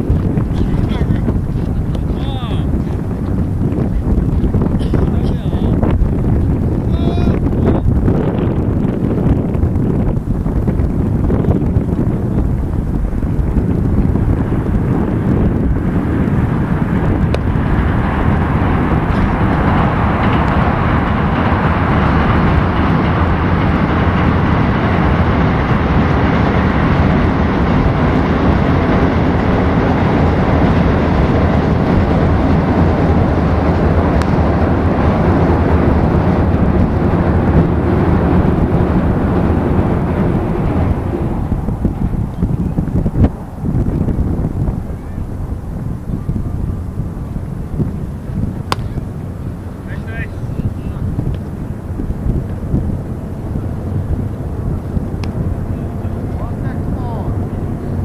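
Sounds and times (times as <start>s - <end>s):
wind rumbling on microphone: 0.0s - 58.0s
vehicle passing: 13.5s - 58.0s.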